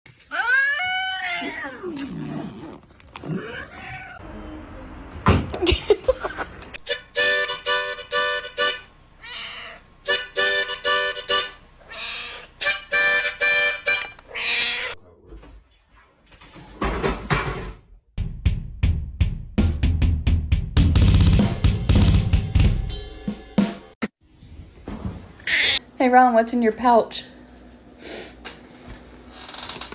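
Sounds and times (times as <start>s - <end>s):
cat meowing: 0.3s - 2.2s, 3.3s - 4.2s, 9.2s - 9.9s, 11.8s - 12.6s, 14.3s - 15.0s.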